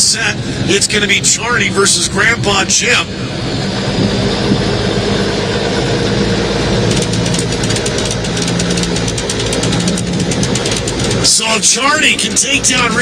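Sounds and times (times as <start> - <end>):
diesel truck engines idling: 0.0 - 13.0
fast rattling clatter: 6.0 - 13.0.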